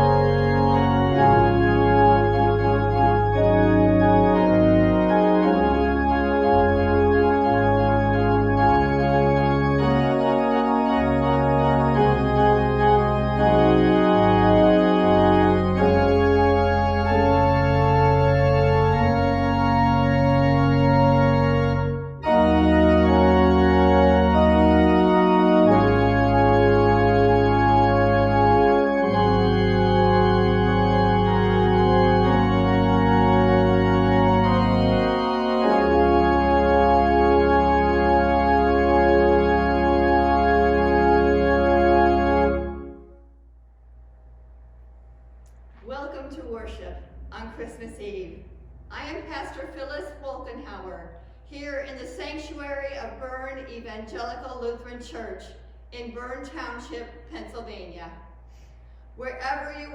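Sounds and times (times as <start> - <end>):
organ playing slow chords: 0.0 - 43.3.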